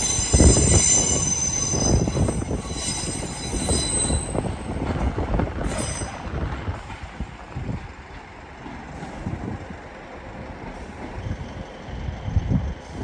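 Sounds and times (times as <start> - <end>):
train wheels squealing: 0.0 - 4.8, 5.6 - 6.3.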